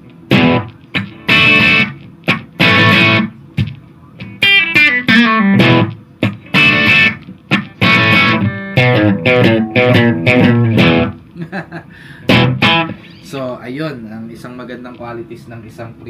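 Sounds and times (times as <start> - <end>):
overdriven electric guitar: 0.0 - 11.4, 12.2 - 13.4.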